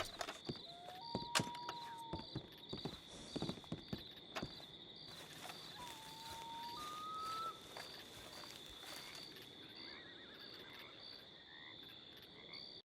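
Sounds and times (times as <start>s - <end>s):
faint warbling calls: 5.3s - 11.3s.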